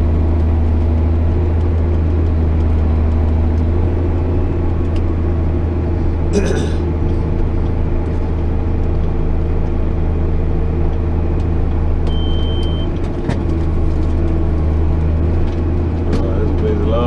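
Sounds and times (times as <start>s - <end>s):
tractor diesel engine droning: 0.0s - 17.0s
short high beep: 12.1s - 12.9s.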